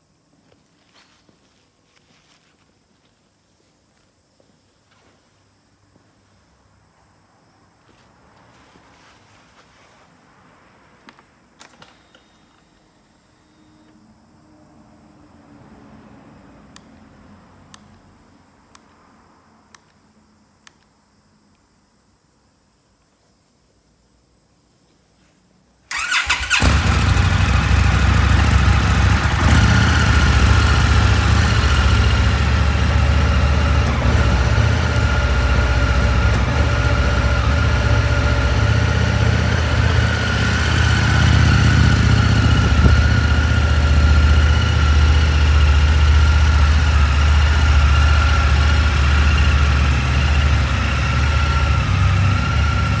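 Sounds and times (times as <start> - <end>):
motorcycle engine starting and idling: 25.9 - 53.0.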